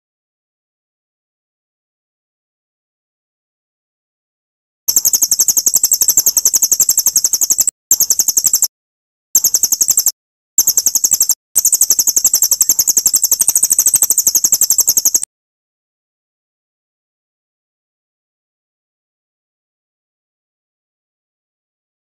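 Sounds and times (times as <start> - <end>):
songbird high-pitched trill: 4.9 - 8.7, 9.4 - 15.3.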